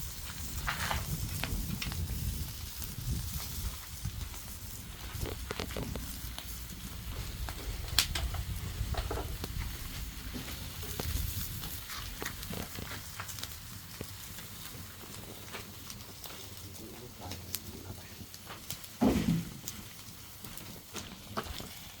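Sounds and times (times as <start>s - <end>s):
food sizzling as it fries: 0.0s - 16.7s.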